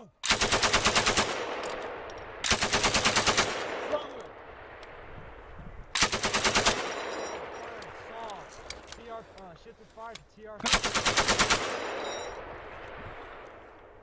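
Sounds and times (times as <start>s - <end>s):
machine gun bursts: 0.2s - 1.4s, 2.5s - 3.6s, 6.0s - 7.2s, 10.6s - 12.4s
rolling echo of gunfire: 0.2s - 4.8s, 6.0s - 8.1s, 10.7s - 13.7s.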